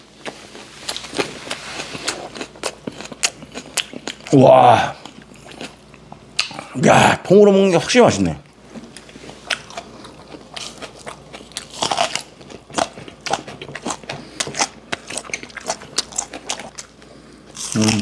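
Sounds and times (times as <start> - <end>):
crunching green onion: 9.4 - 18.0.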